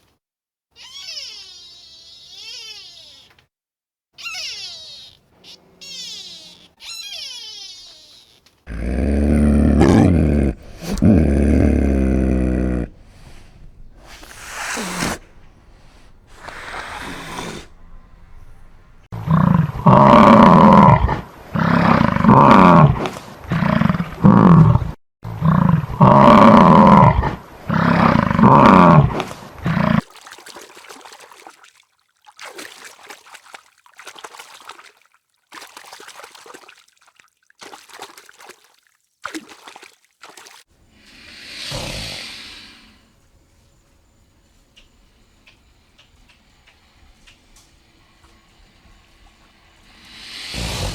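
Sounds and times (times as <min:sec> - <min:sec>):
lion grunting: 0:08.7 - 0:24.8
lion roaring: 0:08.7 - 0:24.8.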